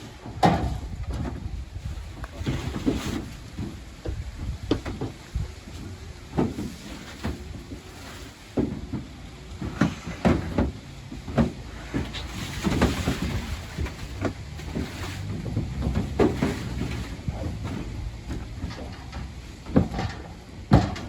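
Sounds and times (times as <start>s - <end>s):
wind buffeting microphone: 0.7s - 6.3s.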